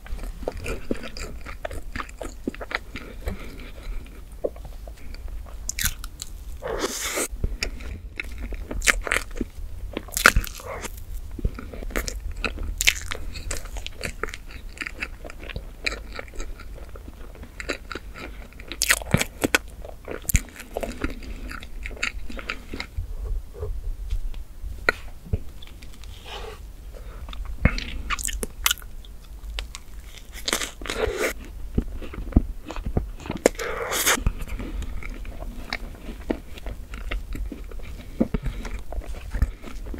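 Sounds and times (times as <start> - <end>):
person chewing wetly: 0.0 - 22.9, 27.2 - 39.9.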